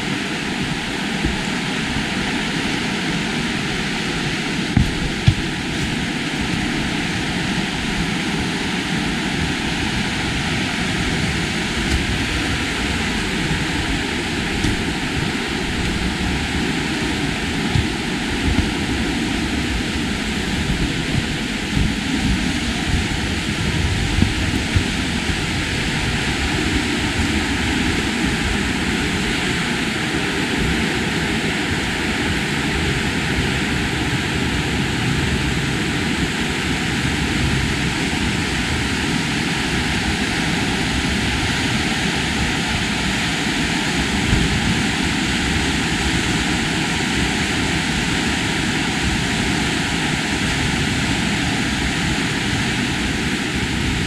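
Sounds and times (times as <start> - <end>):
short knocks: 4.8 - 6.1.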